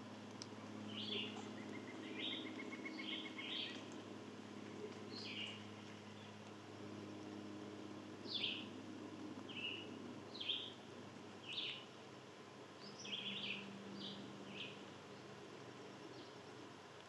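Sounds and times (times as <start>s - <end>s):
faint low hum: 0.0s - 17.0s
small bird chirping: 0.9s - 3.9s, 12.8s - 15.3s.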